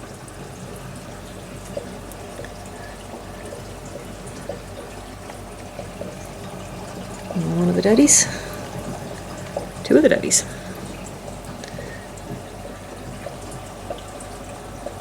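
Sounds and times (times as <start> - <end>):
aquarium water trickling and bubbling: 0.0 - 15.0
faint water drips: 0.0 - 15.0
steady low hum: 0.0 - 15.0.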